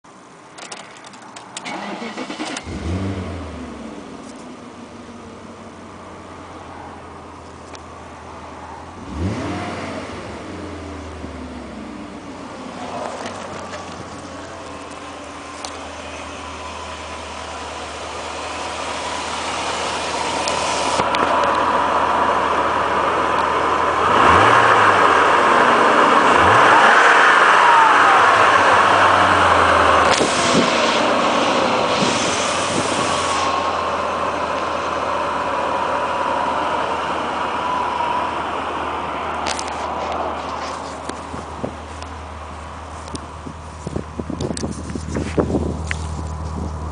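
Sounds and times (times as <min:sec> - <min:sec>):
car engine revving: 0:01.6 - 0:46.9
steady high whine: 0:09.8 - 0:46.9.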